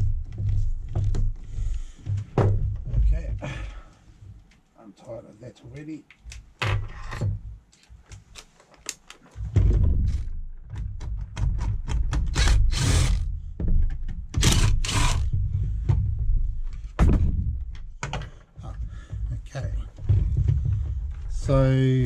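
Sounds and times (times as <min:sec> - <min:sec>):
knocks and scrapes of tool parts: 0:06.1 - 0:21.5.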